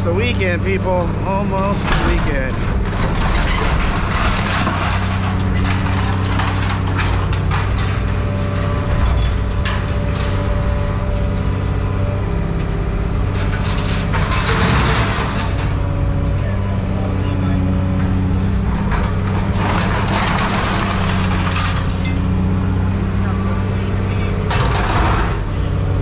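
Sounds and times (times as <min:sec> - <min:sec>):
engine running: 0:00.0 - 0:26.0
scrap metal clanking: 0:00.9 - 0:16.4, 0:18.4 - 0:22.4.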